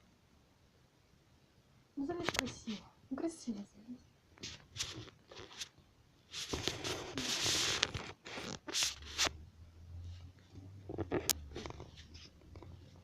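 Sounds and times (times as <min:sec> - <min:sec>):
kitten claws scratching: 0:04.4 - 0:09.4, 0:10.8 - 0:13.0.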